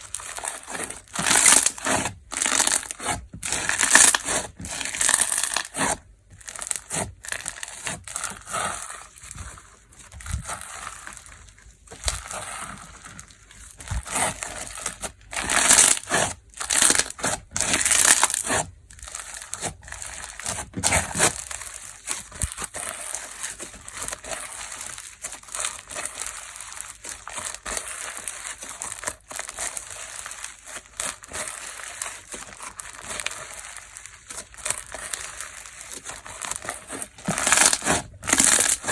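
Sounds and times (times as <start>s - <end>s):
slime crackling when squeezed: 23.9s - 38.9s.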